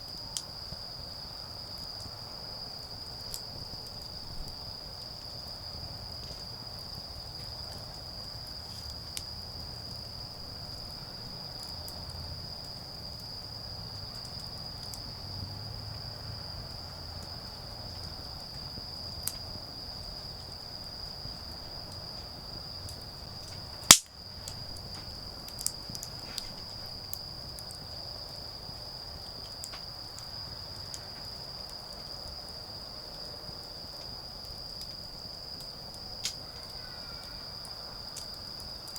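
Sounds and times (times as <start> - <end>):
insects trilling: 0.0 - 38.9
wood fire crackling: 0.0 - 38.9
loud fire pop: 23.9 - 24.2.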